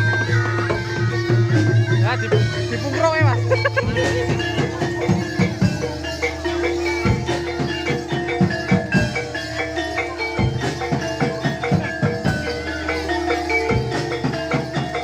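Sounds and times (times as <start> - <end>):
metallophones ringing: 0.0 - 15.0.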